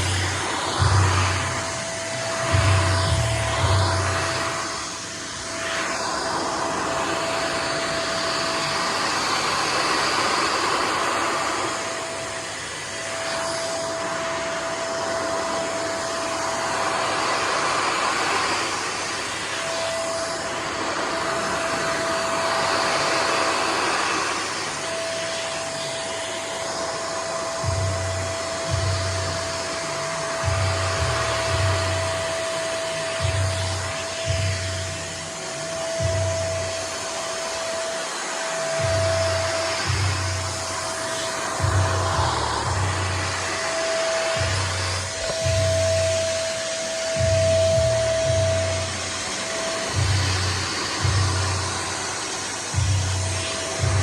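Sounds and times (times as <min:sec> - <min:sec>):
low irregular thumps: 0:00.0 - 0:01.8, 0:02.4 - 0:04.5, 0:33.2 - 0:35.1, 0:36.0 - 0:36.8, 0:38.8 - 0:40.8, 0:41.5 - 0:46.4, 0:47.0 - 0:49.2
vacuum cleaner blowing air: 0:00.0 - 0:54.0.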